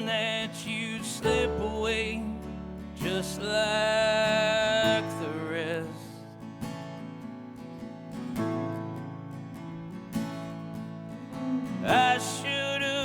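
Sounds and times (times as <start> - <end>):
acoustic guitar strumming: 0.0 - 13.0
country band music: 11.2 - 13.0.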